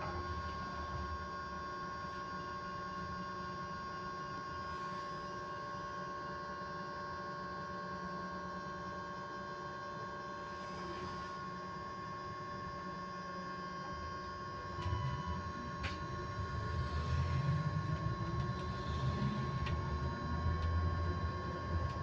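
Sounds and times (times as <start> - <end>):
electric bus whine: 0.0 - 22.0
road rumble inside bus: 14.9 - 22.0.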